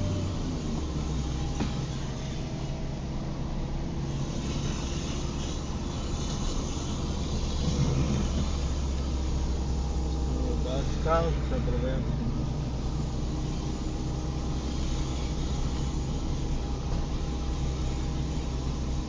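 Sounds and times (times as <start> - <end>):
car engine and road rumble: 0.0 - 19.0
wet tyres and rain hiss: 0.0 - 19.0.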